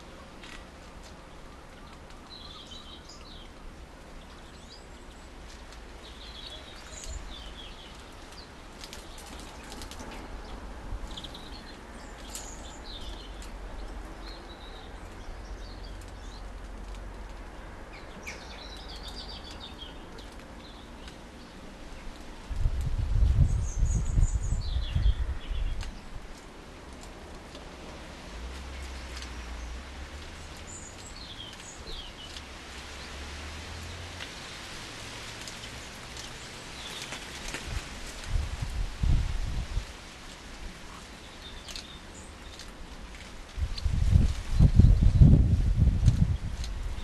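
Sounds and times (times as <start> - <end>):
steady low rumble: 21.7 - 32.3.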